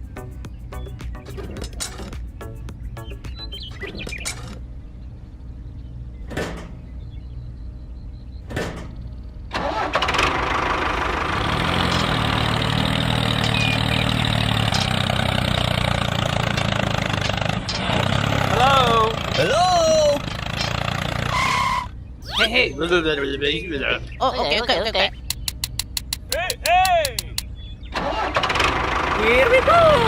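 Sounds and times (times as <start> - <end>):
engine starting and running: 8.4 - 22.9, 27.3 - 30.0
short clicks: 25.2 - 27.5.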